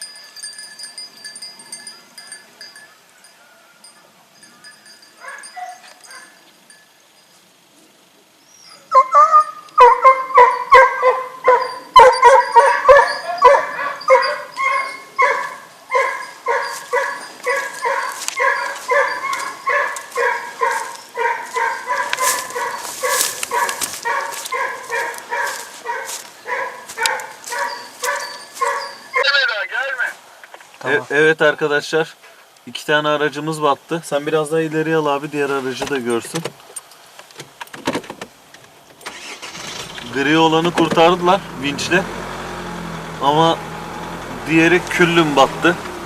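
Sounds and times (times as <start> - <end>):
dog barking: 5.2 - 6.4, 8.8 - 29.3.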